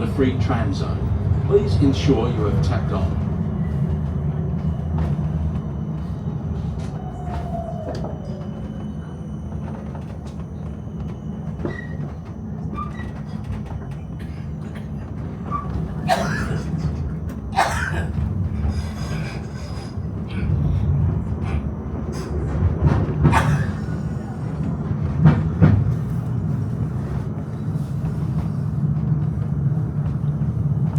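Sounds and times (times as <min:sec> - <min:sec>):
tram rumbling on rails: 0:00.0 - 0:30.9
high wheel squeaks: 0:00.2 - 0:17.0.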